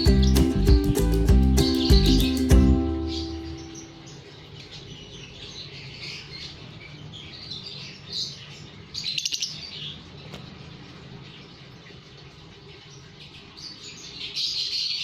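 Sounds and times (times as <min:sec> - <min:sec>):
bird call of rapid repeated notes: 0:00.0 - 0:04.2
lovebirds chirping: 0:00.0 - 0:15.0.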